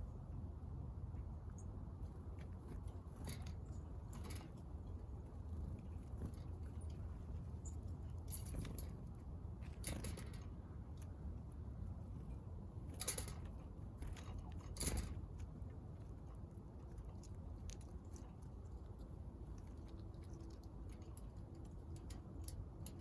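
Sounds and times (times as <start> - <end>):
low steady rumble: 0.0 - 23.0
birds pecking at seed: 1.5 - 23.0.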